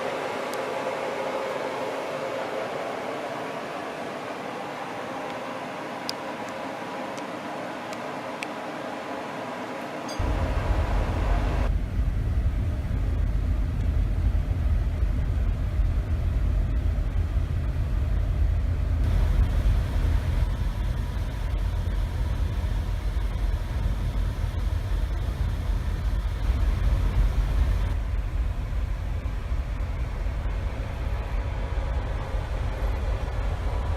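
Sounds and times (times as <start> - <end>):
ship low rumble: 10.1 - 33.9.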